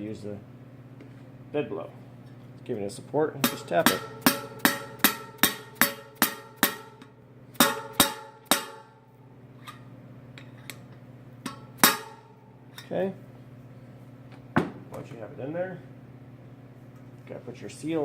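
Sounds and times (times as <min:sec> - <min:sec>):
hammer tapping metal bearing: 0:03.4 - 0:08.9.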